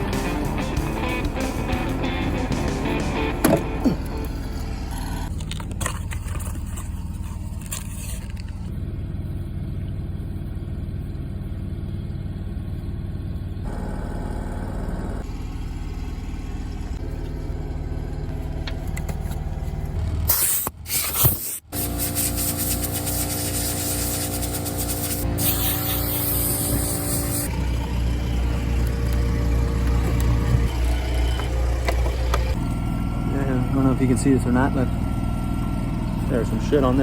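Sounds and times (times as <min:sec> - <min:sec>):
engine-like hum: 0:00.0 - 0:37.0.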